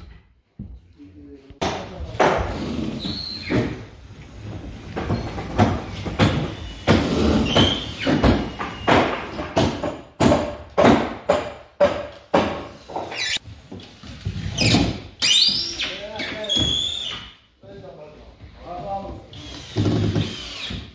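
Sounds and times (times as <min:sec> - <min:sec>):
renovation knocks and bangs: 0:01.6 - 0:15.2.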